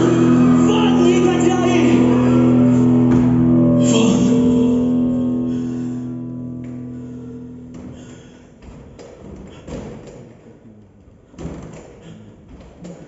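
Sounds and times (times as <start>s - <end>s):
band holding a chord: 0.0s - 8.6s.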